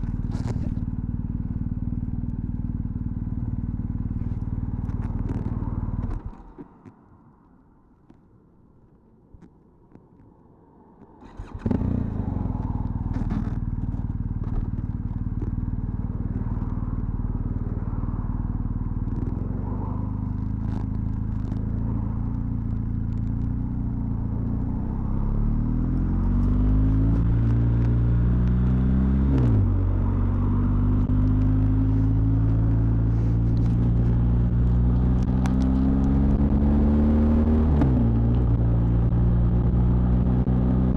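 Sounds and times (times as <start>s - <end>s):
motorcycle engine starting and idling: 11.2s - 24.6s.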